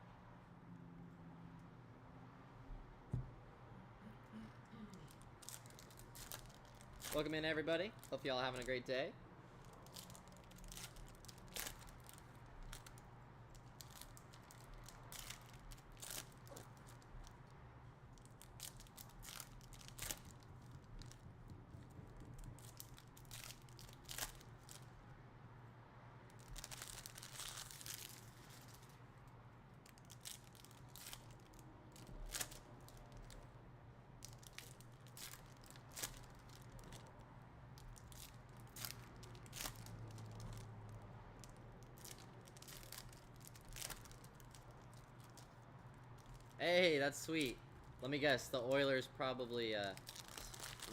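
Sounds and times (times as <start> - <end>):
foil wrappers crinkling and tearing: 5.4 - 8.8, 9.6 - 17.5, 18.1 - 21.2, 22.3 - 24.9, 26.4 - 29.0, 29.8 - 33.4, 34.2 - 37.1, 37.8 - 40.7, 41.4 - 46.6, 49.8 - 50.9.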